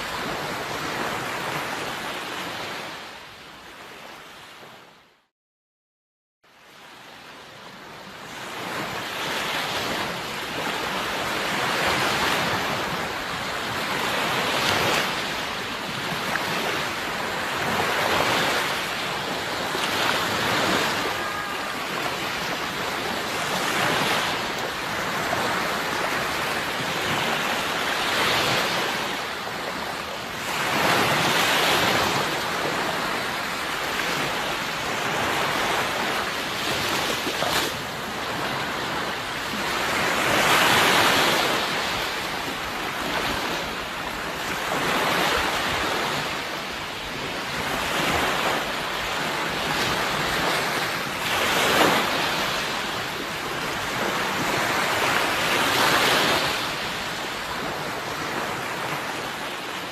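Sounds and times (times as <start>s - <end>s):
sea waves breaking: 0.0s - 5.0s, 6.6s - 59.9s.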